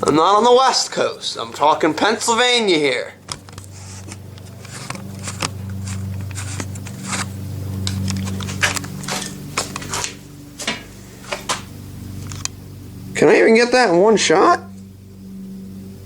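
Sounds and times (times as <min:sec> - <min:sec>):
steady low hum: 0:00.0 - 0:16.0
handling clicks and rustles: 0:03.2 - 0:12.6.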